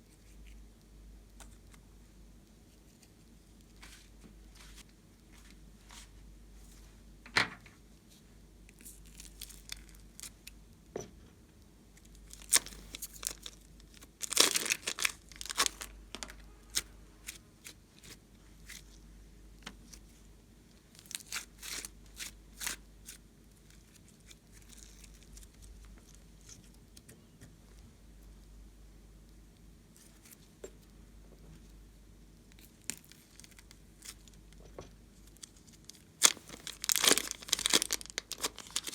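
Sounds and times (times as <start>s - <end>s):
slime crackling and popping: 12.3s - 16.4s, 35.5s - 38.9s.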